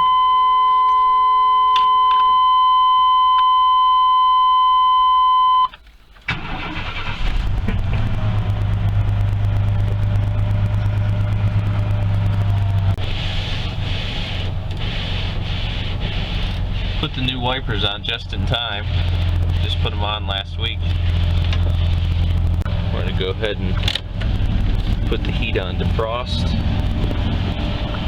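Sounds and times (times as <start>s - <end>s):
van engine cranking and idling: 5.8s - 28.0s.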